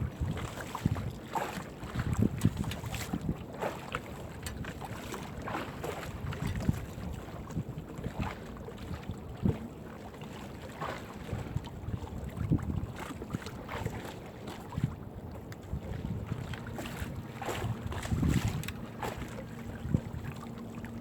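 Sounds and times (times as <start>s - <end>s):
wind on microphone: 0.0s - 3.6s, 4.5s - 9.6s, 11.2s - 21.0s
water sloshing: 0.1s - 21.0s
knocks and scrapes on boat: 0.2s - 7.6s, 15.7s - 21.0s.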